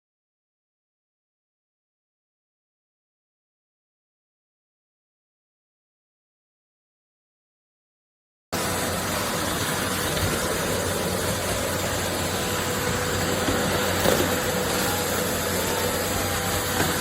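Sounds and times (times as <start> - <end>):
vacuum cleaner running: 8.6 - 17.0.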